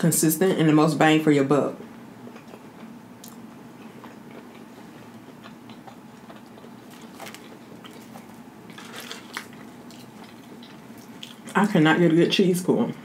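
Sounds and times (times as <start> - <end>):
steady low hum: 0.0 - 13.0
person chewing pizza: 2.2 - 11.6.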